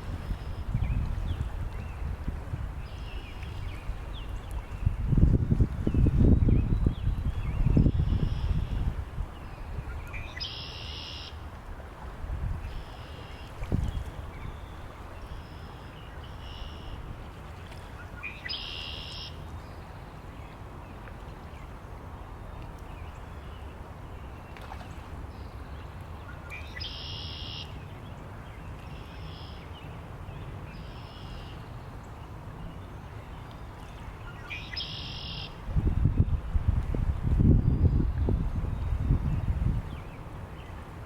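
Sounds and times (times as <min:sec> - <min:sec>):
low wind rumble: 0:00.0 - 0:10.4, 0:11.5 - 0:15.5, 0:35.5 - 0:41.0.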